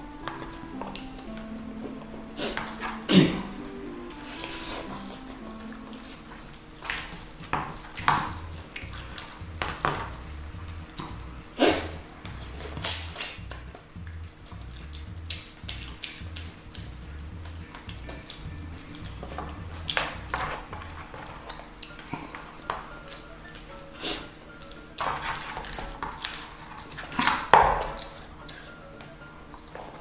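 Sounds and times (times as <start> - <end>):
background music with low beat: 0.0 - 30.0.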